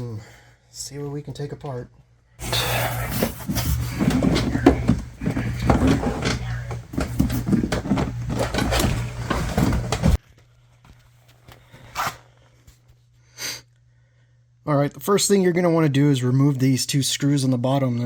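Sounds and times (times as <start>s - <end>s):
steady low hum: 2.4s - 10.2s.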